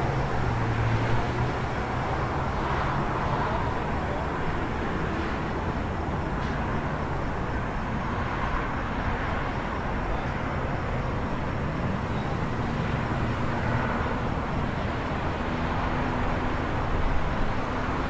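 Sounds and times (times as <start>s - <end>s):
distant traffic: 0.0s - 18.0s.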